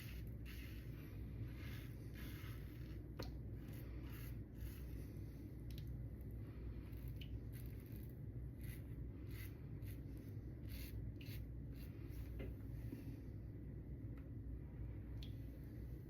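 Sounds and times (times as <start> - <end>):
razor scraping stubble: 0.0 - 5.0, 6.8 - 12.3.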